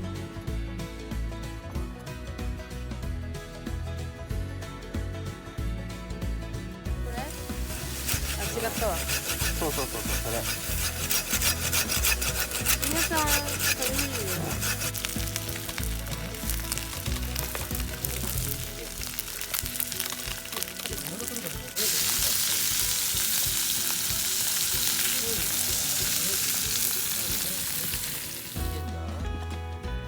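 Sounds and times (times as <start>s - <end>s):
background music: 0.0s - 30.0s
food sizzling in a pan: 7.0s - 28.9s
clicks and scraping: 7.2s - 28.8s.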